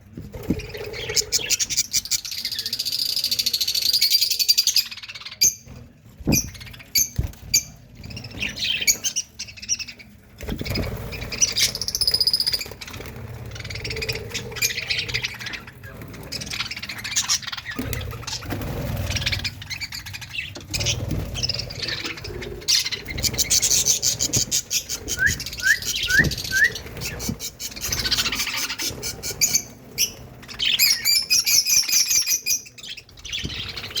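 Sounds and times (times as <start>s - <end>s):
budgerigars chattering: 8.2s - 34.0s.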